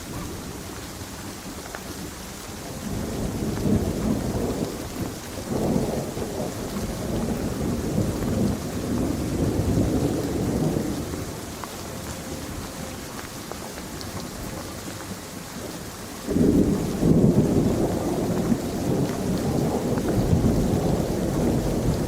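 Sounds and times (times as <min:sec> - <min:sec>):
steady rain: 0:00.0 - 0:22.0
rolling thunder: 0:02.6 - 0:13.0, 0:15.6 - 0:22.0.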